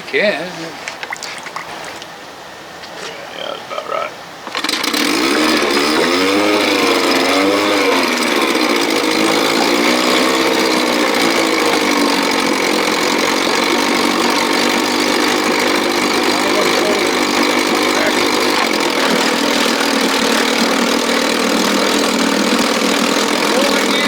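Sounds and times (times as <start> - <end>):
outboard motor starting and running: 4.3 - 24.0.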